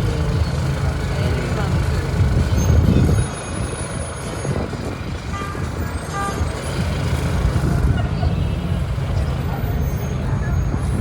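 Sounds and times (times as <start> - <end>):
heavy vehicle engine rumbling: 0.0 - 11.0.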